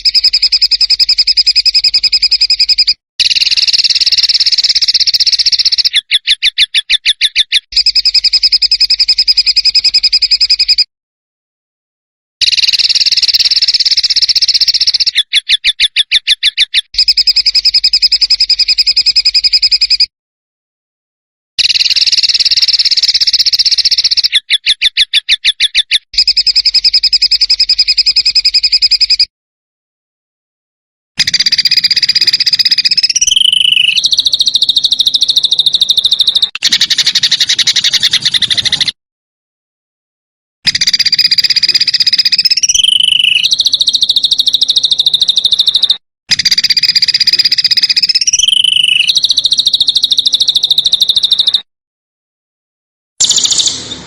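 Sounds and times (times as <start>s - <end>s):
songbird harsh buzzing trills: 31.2s - 38.9s, 42.4s - 45.7s, 48.2s - 51.4s, 53.2s - 54.0s.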